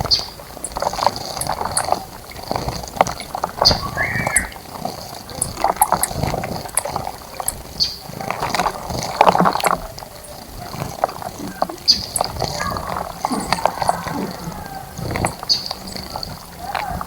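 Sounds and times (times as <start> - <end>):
bird chirp: 0.0 - 0.8, 3.6 - 4.6, 7.4 - 8.1, 11.4 - 17.0
birds splashing water: 0.0 - 17.0.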